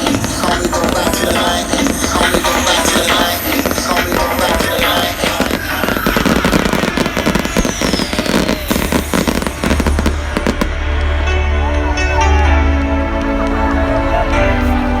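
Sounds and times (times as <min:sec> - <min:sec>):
firework falling whistle: 0:00.0 - 0:10.8
fireworks crackling and popping: 0:00.0 - 0:11.2
background music: 0:00.0 - 0:15.0.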